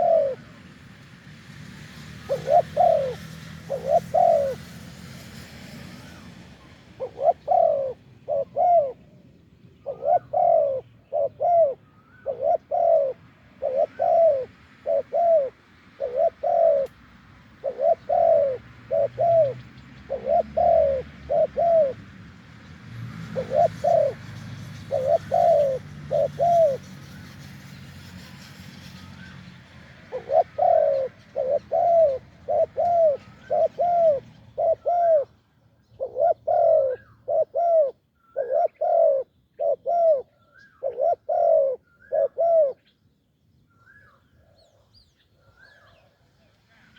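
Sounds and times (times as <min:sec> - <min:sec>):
doves cooing: 0:00.0 - 0:00.8, 0:02.2 - 0:04.8, 0:07.0 - 0:09.2, 0:09.8 - 0:22.1, 0:23.1 - 0:27.2, 0:30.0 - 0:42.8.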